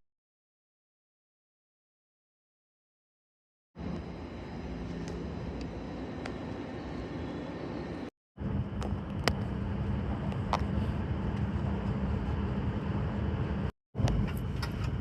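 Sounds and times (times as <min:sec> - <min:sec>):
train rumble and hum: 0:03.8 - 0:15.0.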